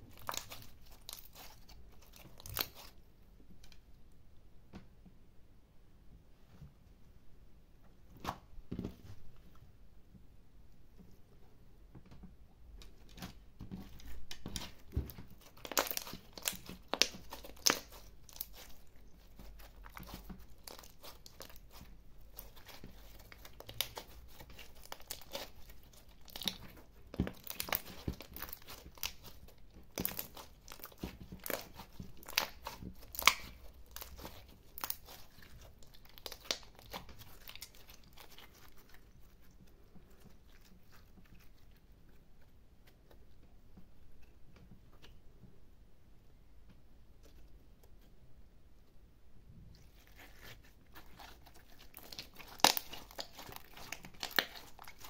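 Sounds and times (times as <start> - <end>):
slime popping and crackling: 0.0 - 3.0, 13.9 - 39.6, 49.8 - 55.0.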